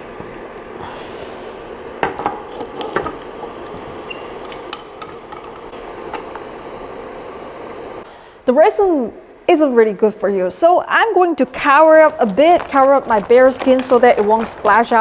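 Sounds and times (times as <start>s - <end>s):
steady background hum: 0.0s - 15.0s
hard parts knocking and clicking: 2.0s - 6.4s.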